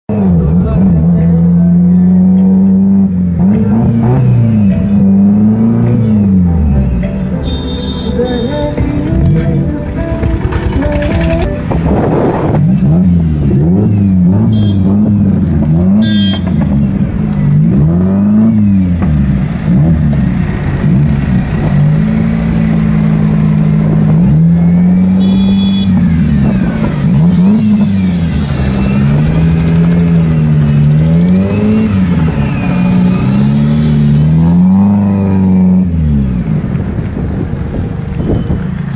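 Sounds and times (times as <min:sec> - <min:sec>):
sports car engine revving: 0:08.0 - 0:36.9.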